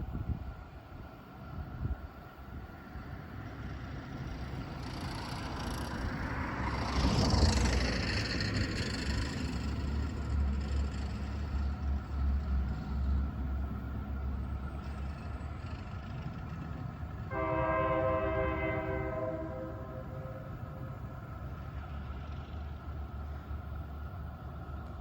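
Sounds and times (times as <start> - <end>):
low rumble of passing train: 0.0 - 25.0
train horn chord: 17.3 - 21.2.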